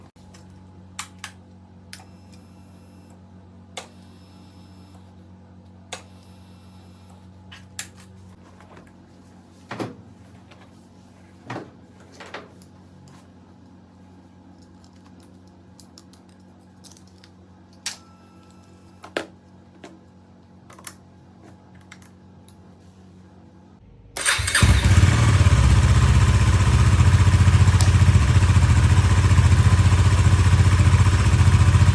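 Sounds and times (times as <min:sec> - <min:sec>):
motorcycle engine starting and running: 0:24.1 - 0:31.9.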